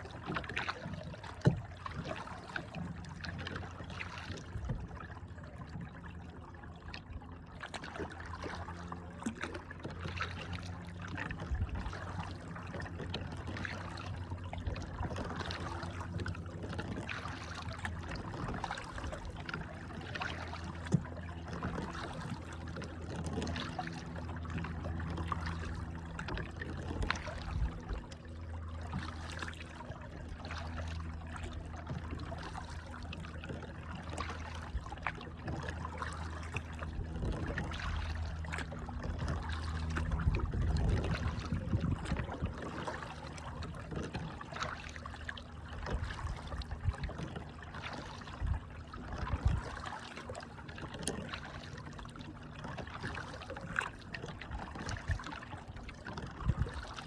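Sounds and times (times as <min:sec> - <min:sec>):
water trickling around paddled kayak: 0:00.0 - 0:57.0
steady low rumble: 0:36.6 - 0:43.9.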